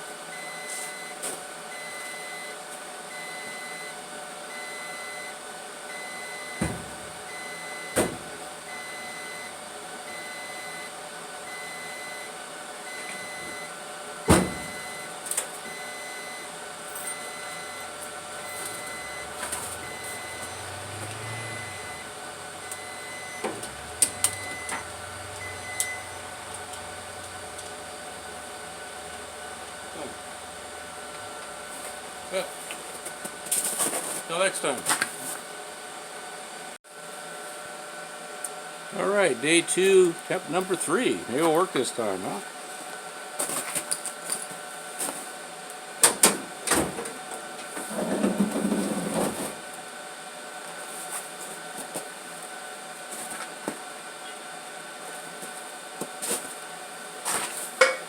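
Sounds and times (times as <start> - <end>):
steady hum: 5.9 - 33.8
high electronic beeps: 17.0 - 26.3.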